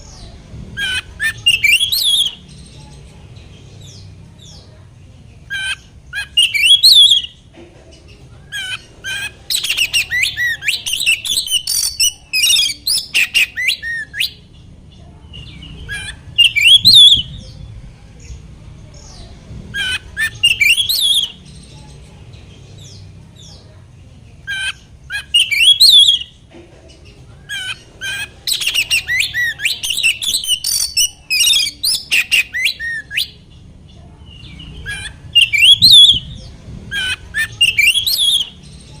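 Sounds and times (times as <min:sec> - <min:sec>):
songbird singing whistled phrases: 0:00.8 - 0:02.8, 0:05.5 - 0:07.4, 0:08.5 - 0:14.4, 0:15.3 - 0:17.6, 0:19.8 - 0:21.7, 0:24.5 - 0:26.4, 0:27.5 - 0:33.4, 0:34.3 - 0:38.8.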